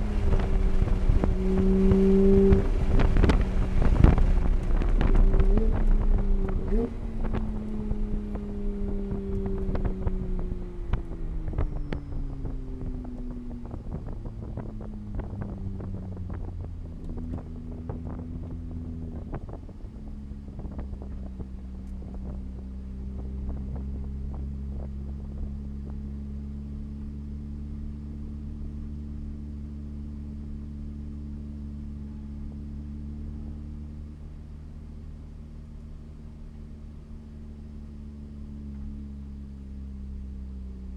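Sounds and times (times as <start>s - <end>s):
vehicle engine winding down: 0.0s - 29.4s.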